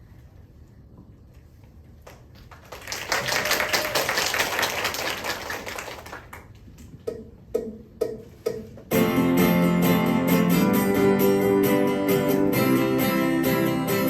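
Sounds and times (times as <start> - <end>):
audience applauding: 2.3 - 6.5
guitar picking single notes: 8.9 - 14.0.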